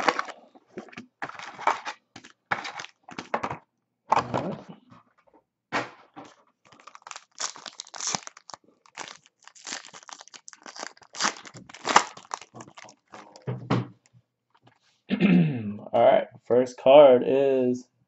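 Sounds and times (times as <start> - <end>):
wrapper tearing and crinkling: 0.0 - 0.4, 1.3 - 3.2, 6.6 - 13.5.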